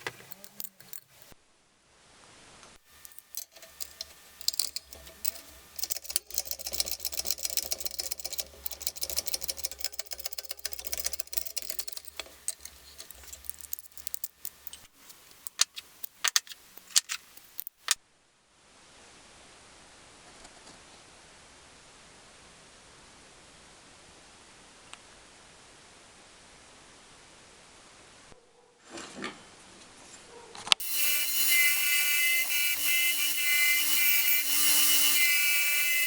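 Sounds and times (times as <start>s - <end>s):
metal tools clicking and clattering: 0.0s - 1.4s, 2.9s - 18.0s, 30.8s - 36.0s.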